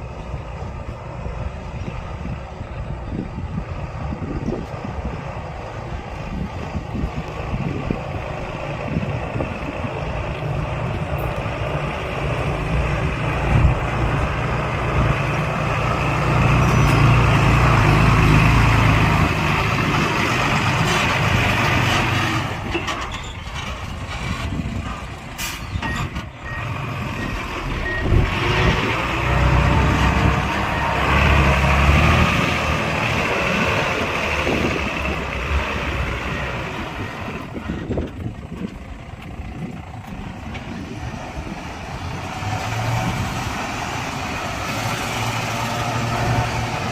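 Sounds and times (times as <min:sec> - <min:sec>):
heavy diesel machinery running: 0:00.0 - 0:46.9
reversing alarm beeping: 0:25.9 - 0:28.5.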